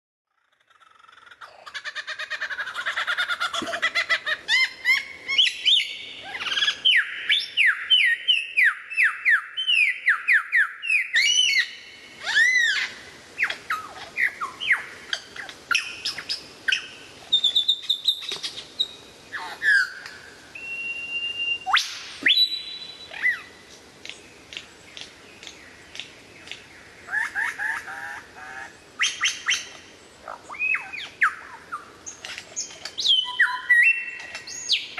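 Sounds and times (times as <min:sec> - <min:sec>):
songbirds singing: 0:00.4 - 0:34.9.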